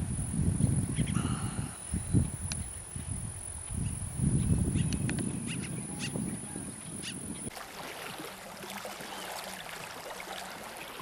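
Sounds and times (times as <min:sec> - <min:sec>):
wind rumble on microphone: 0:00.0 - 0:07.5.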